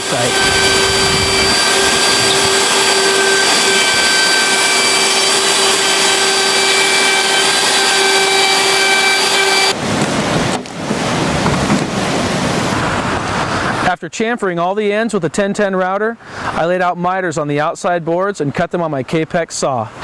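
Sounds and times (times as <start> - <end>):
lower rushing noise: 0.0 - 7.8, 9.7 - 14.0
track saw cutting with whine: 0.0 - 9.8.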